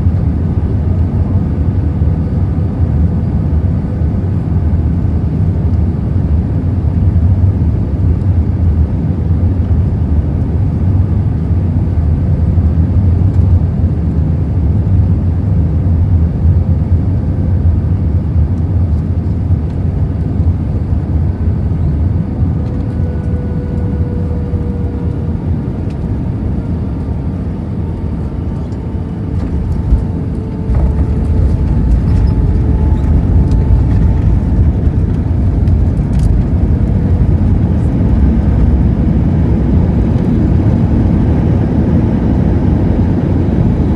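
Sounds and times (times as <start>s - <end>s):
aircraft cabin engine rumble: 0.0s - 43.9s
faint falling whine: 21.9s - 41.0s.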